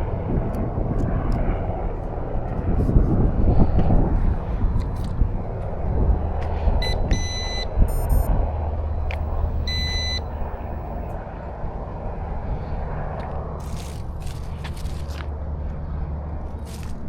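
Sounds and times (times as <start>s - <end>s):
steady low rumble: 0.0s - 17.0s
short electronic beeps: 6.8s - 8.4s, 9.6s - 11.0s.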